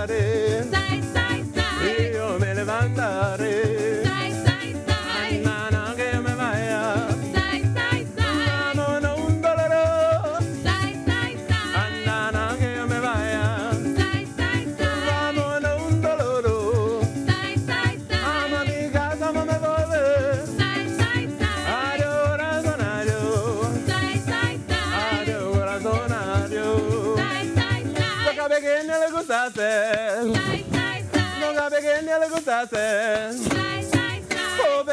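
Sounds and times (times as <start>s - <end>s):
person singing: 0.0s - 9.5s, 10.6s - 28.7s, 30.1s - 34.9s
maracas shaking: 0.0s - 34.9s
bass pulse: 30.3s - 31.4s.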